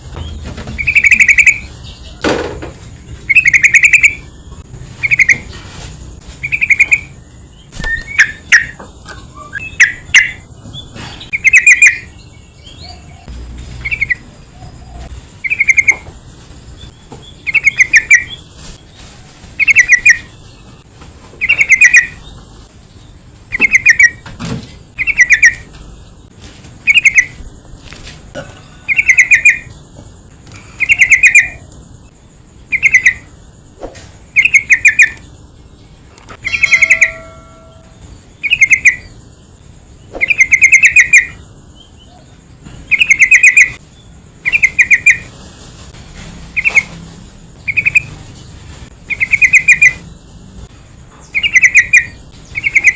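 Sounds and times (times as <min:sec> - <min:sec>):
bird bubbling chirps: 0:05.0 - 0:05.4, 0:15.4 - 0:16.0
faint high whine: 0:30.4 - 0:45.0.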